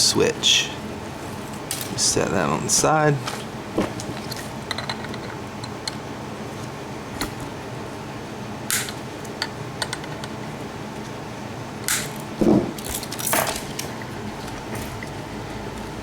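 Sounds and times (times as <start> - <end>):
metal parts clicking and clinking: 4.1 - 6.0, 11.9 - 13.9.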